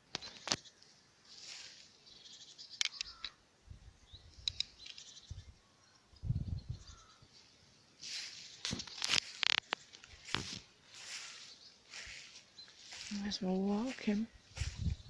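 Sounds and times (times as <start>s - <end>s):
songbirds chirping: 0.0s - 15.0s
sharp clicks: 2.7s - 3.4s, 4.4s - 5.1s, 8.6s - 10.4s
microphone handling rumble: 14.5s - 15.0s.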